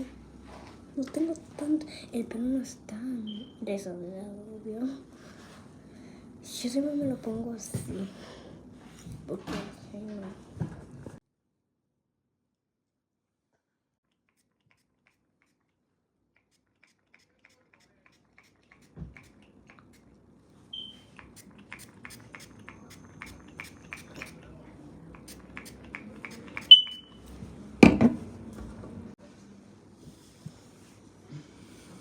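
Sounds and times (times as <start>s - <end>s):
short high beeps: 20.7s - 21.1s, 26.6s - 27.2s.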